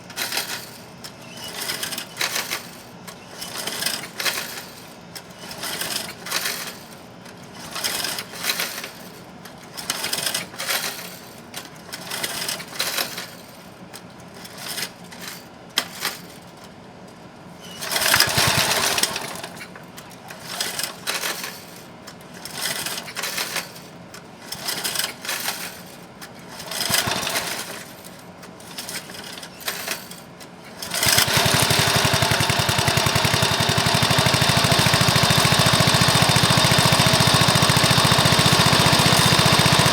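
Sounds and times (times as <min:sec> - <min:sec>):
lawn mower engine cranking: 0:17.8 - 0:19.8, 0:26.7 - 0:27.9, 0:30.8 - 0:39.9
lawn mower engine running: 0:17.9 - 0:19.6, 0:26.8 - 0:27.6, 0:30.8 - 0:39.9.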